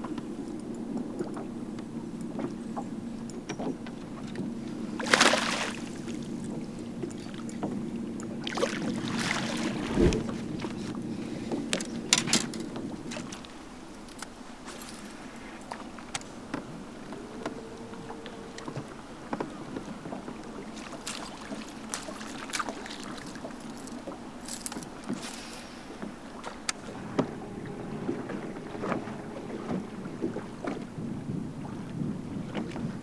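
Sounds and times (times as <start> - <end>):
wind: 0.0 - 33.0
water rushing: 4.7 - 6.8, 13.1 - 33.0
fishing gear clicking and rattling: 11.5 - 30.8.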